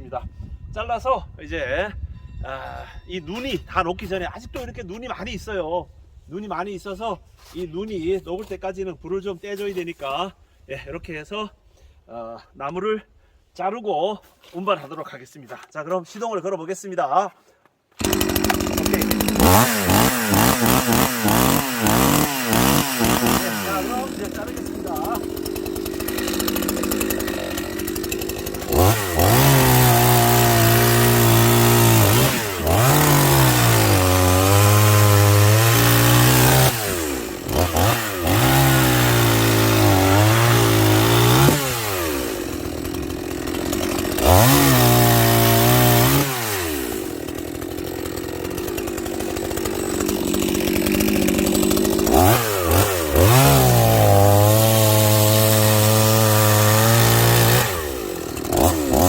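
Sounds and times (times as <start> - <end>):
chainsaw cutting logs: 17.7 - 59.0.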